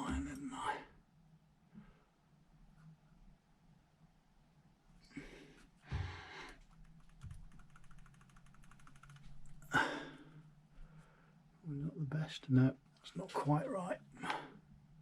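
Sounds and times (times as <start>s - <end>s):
fast fine ticks: 6.7s - 9.3s.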